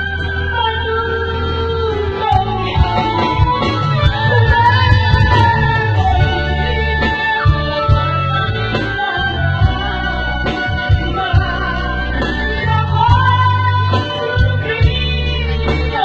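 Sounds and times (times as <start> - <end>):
person singing: 0.0 - 16.0
sustained bass notes: 0.0 - 16.0
light steady beat: 2.3 - 8.2.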